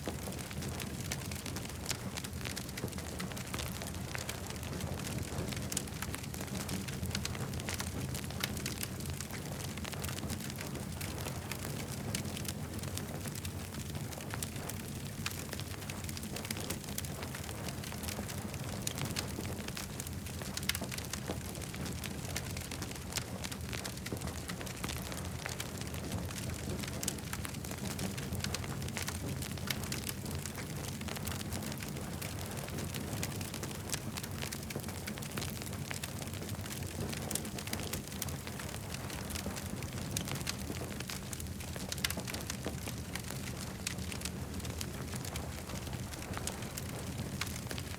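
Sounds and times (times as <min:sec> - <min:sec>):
low fire rumble: 0:00.0 - 0:47.9
campfire pops and snaps: 0:26.4 - 0:47.9.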